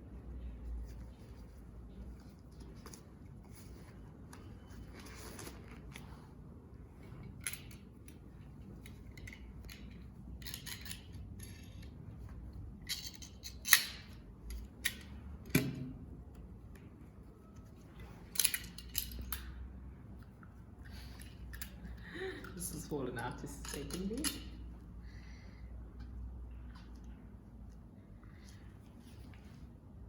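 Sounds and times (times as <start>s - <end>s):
equipment rustling and clicking: 0.2s - 15.8s.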